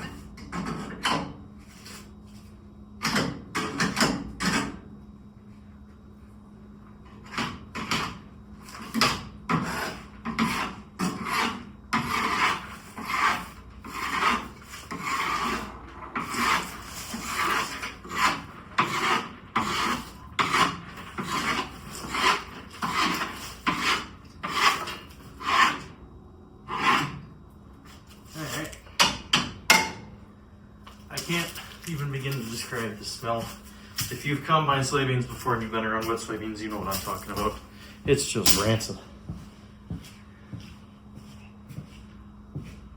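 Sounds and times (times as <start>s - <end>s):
tool scraping wet beans: 7.2s - 26.0s.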